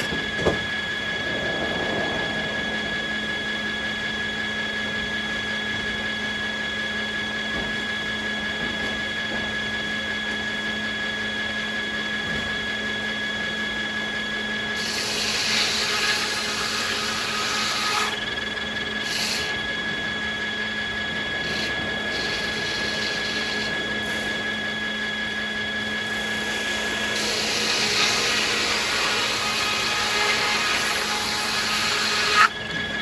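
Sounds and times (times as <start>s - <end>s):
sawmill machinery whine: 0.0s - 33.0s
saw blade cutting wood: 14.8s - 18.2s, 19.0s - 19.6s, 21.4s - 24.5s, 26.2s - 32.6s.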